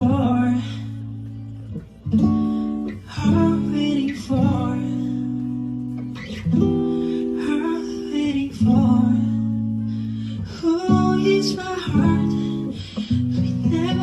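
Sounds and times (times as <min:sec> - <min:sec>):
acoustic guitar strumming chords: 0:00.0 - 0:14.0
person singing: 0:02.4 - 0:05.6, 0:06.9 - 0:14.0.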